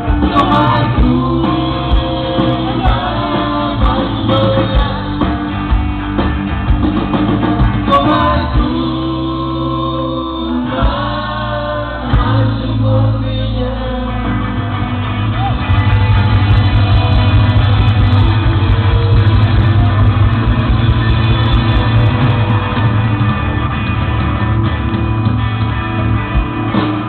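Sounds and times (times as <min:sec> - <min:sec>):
voices singing: 0:00.0 - 0:05.8, 0:07.7 - 0:14.8
live rock band playing: 0:00.0 - 0:27.0.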